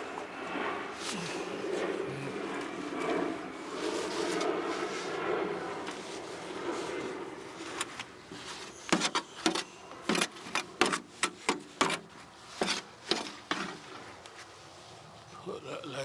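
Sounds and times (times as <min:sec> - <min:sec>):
soil scraping in plastic bucket: 0:07.5 - 0:14.3.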